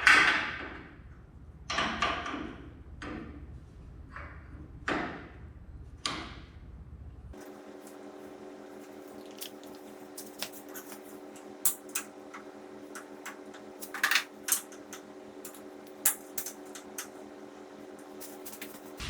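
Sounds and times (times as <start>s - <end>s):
steady hum: 7.4s - 19.0s
metal tools clicking: 9.4s - 17.3s, 17.9s - 19.0s.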